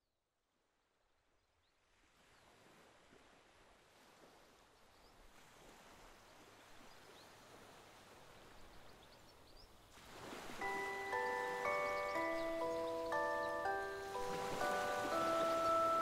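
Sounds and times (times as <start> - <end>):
faint high bird chirps: 10.9 - 16.0.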